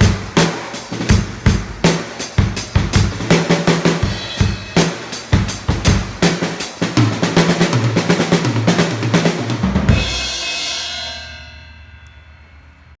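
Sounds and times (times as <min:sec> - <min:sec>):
drum fill on toms: 0:00.0 - 0:11.2
crash cymbal ringing: 0:09.9 - 0:13.0.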